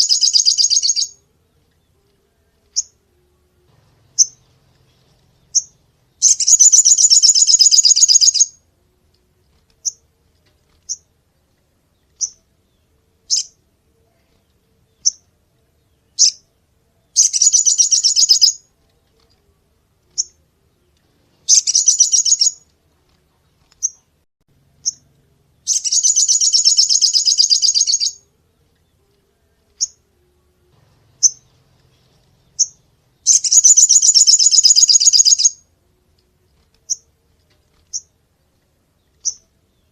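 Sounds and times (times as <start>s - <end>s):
songbird rattling trills: 0.0s - 1.2s, 4.1s - 8.6s, 17.2s - 18.6s, 21.5s - 22.6s, 25.7s - 28.2s, 31.1s - 35.6s
songbird chirps: 0.0s - 39.9s.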